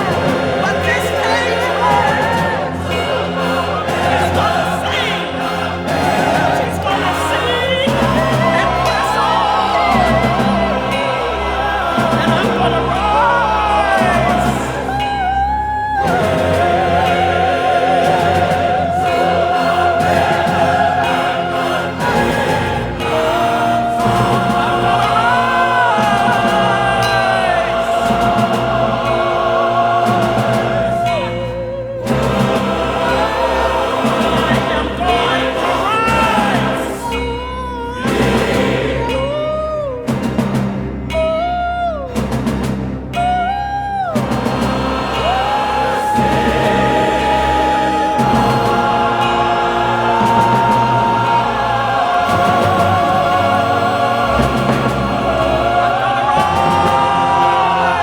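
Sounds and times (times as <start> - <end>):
orchestra and choir: 0.0 - 58.0
operatic solo voice: 43.2 - 58.0.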